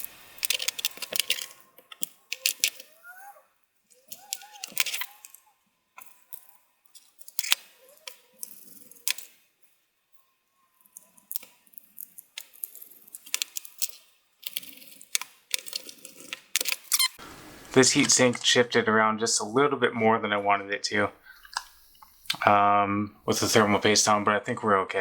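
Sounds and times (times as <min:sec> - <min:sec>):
small parts clicking and knocking: 0:00.0 - 0:17.2.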